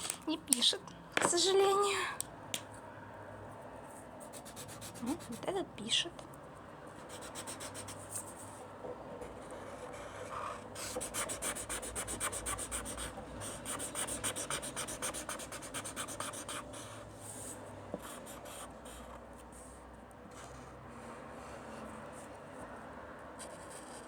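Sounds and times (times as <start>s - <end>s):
marker scribbling on paper: 4.2s - 5.5s, 9.4s - 19.7s.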